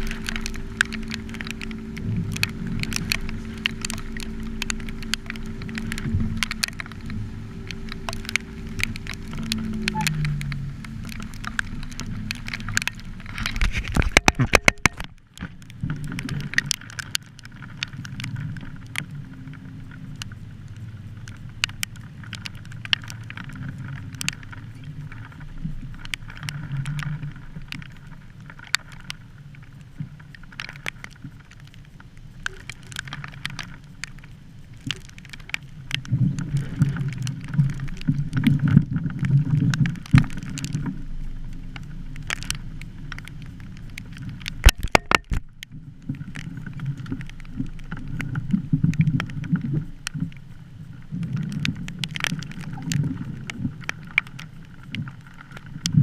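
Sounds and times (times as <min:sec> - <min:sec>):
sharp ticks and clicks: 0:00.0 - 0:56.0
wind rumbling on microphone: 0:00.0 - 0:56.0.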